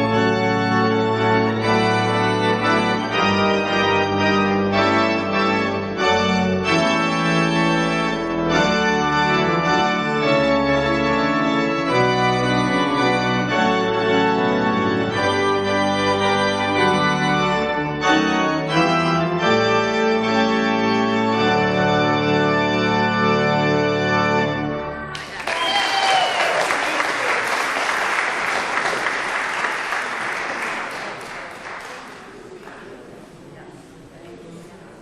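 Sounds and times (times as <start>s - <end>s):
organ playing chords: 0.0s - 25.2s.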